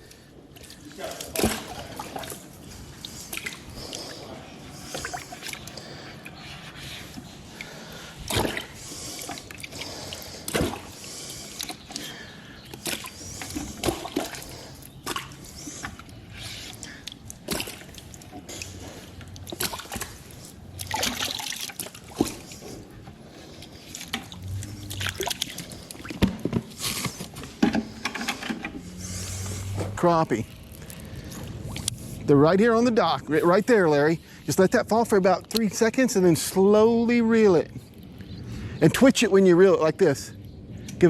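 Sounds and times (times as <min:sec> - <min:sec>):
water sloshing and splashing: 0:00.0 - 0:32.3.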